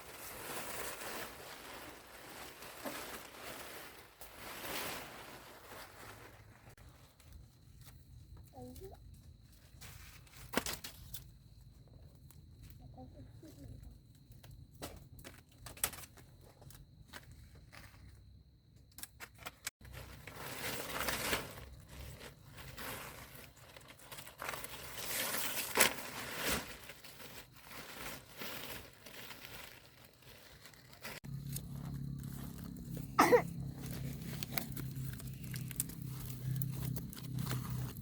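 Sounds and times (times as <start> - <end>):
plastic tarpaulin crinkling: 0.0 - 8.0, 19.4 - 38.0.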